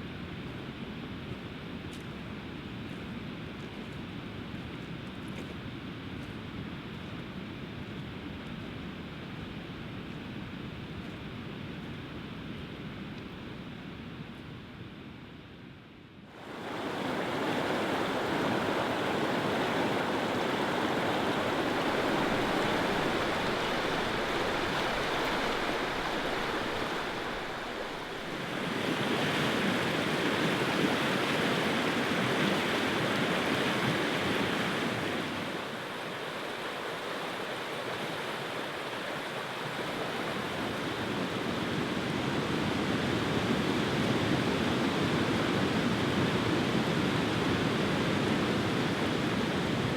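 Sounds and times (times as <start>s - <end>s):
river water rushing: 16.4s - 42.8s.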